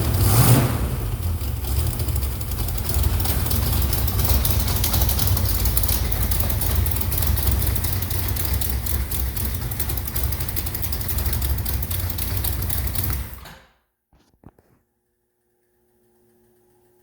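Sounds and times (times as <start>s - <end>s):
engine running on test stand: 0.0s - 13.5s.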